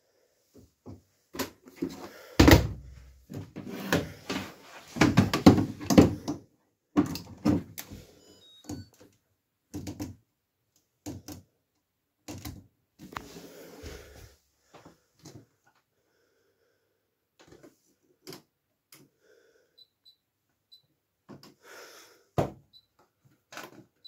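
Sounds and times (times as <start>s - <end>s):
faint high beeps: 8.2s - 9.0s.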